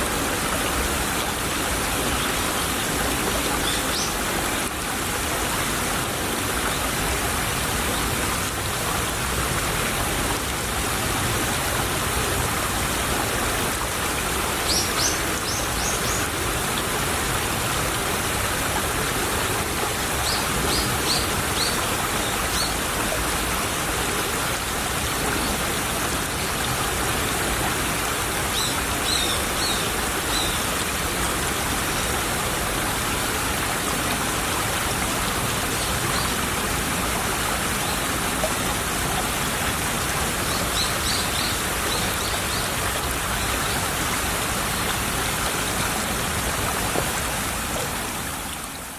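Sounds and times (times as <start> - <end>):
stream flowing: 0.0 - 48.9.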